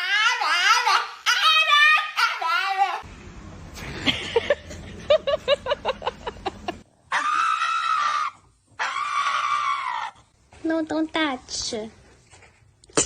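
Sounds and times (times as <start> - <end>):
dog high scream-like cry: 0.0 - 3.0, 7.1 - 10.2
dog yipping: 0.0 - 3.0.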